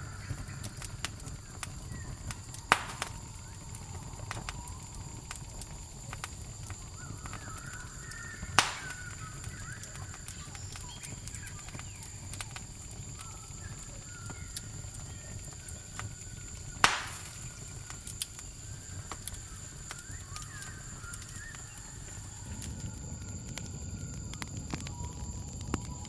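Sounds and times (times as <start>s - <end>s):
campfire crackling: 0.0s - 26.0s
cricket trill: 0.0s - 26.0s
low rumble of burning: 0.0s - 26.0s
sharp loud fire pop: 2.7s - 3.2s, 8.6s - 9.2s, 16.8s - 17.4s.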